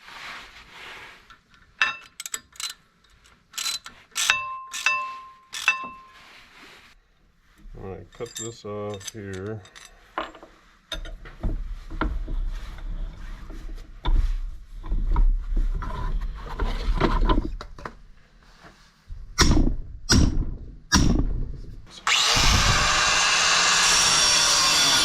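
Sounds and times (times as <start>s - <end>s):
metal parts clanking: 1.8s - 6.1s, 8.1s - 11.1s
power tool cutting metal: 22.0s - 25.0s.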